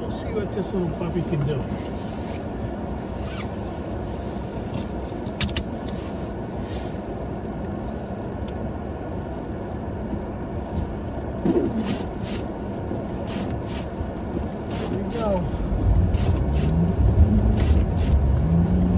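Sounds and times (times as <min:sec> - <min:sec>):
pickup truck engine rumbling: 0:08.7 - 0:18.9.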